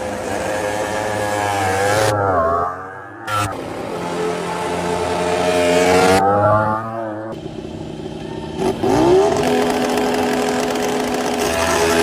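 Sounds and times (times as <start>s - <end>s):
racing motorcycle engine: 0.0s - 12.0s.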